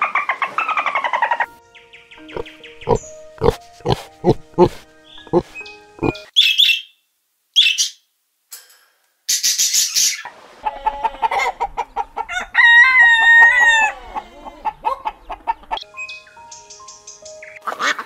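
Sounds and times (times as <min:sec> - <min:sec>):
rooster clucking: 0:02.3 - 0:06.2, 0:10.3 - 0:15.8
rooster crowing: 0:10.6 - 0:15.0.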